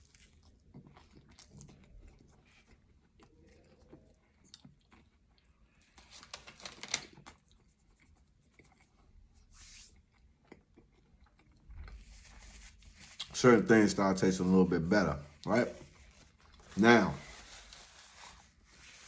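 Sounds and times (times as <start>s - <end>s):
faint chewing with small clicks: 0.0s - 6.3s, 7.0s - 12.4s.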